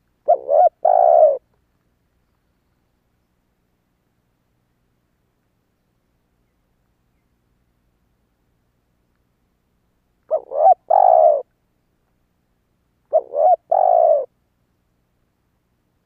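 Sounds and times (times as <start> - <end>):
dove cooing: 0.2 - 1.4, 10.3 - 11.5, 13.1 - 14.3.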